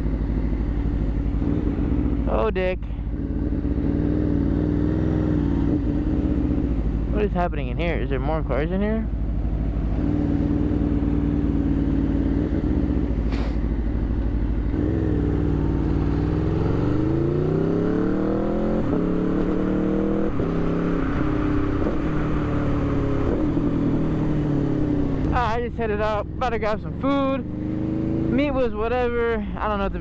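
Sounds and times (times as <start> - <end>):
motorcycle engine revving: 0.0 - 30.0
gear upshift: 8.7 - 28.6.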